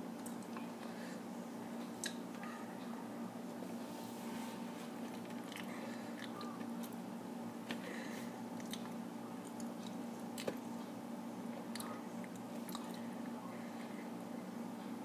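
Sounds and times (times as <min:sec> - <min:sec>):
steady low hum: 0:00.0 - 0:15.0
boy chewing wetly: 0:05.0 - 0:07.0, 0:08.5 - 0:10.7, 0:11.6 - 0:13.1.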